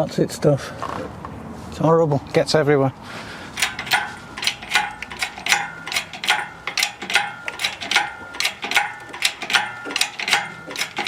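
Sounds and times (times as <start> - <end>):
ratchet clicking: 3.5 - 11.0.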